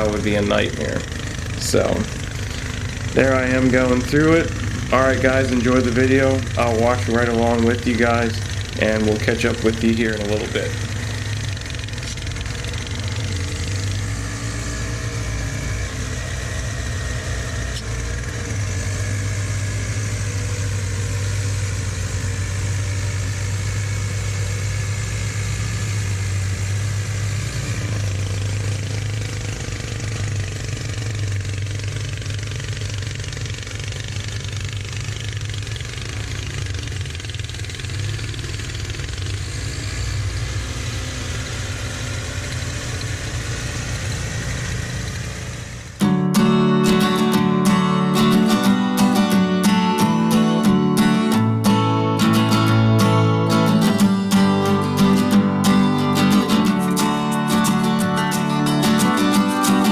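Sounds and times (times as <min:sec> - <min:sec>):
snow rushing from snowblower: 0:00.0 - 0:46.0
snowblower engine running: 0:00.0 - 0:59.9.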